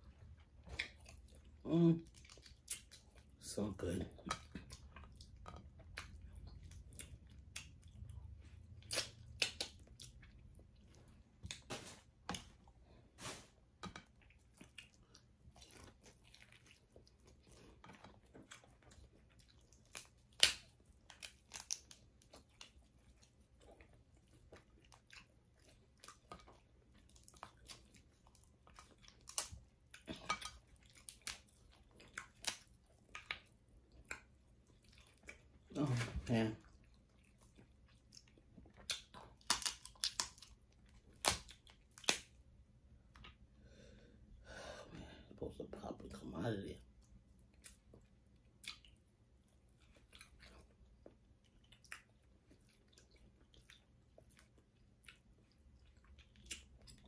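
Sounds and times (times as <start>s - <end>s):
person chewing: 0.0s - 3.4s, 4.1s - 36.0s, 36.6s - 42.4s, 46.9s - 57.0s
crab shells cracking: 19.8s - 22.0s, 38.9s - 40.5s, 41.2s - 42.3s.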